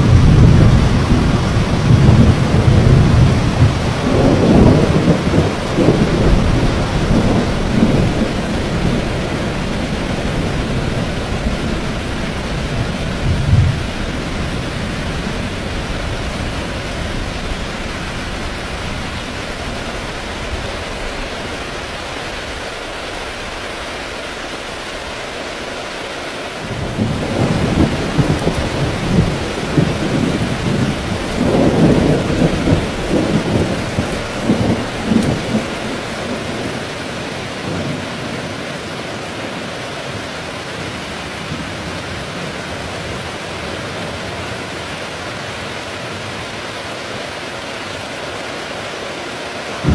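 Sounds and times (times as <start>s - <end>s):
rolling thunder: 0.0s - 21.7s, 26.7s - 38.4s
heavy rain falling: 0.0s - 49.9s.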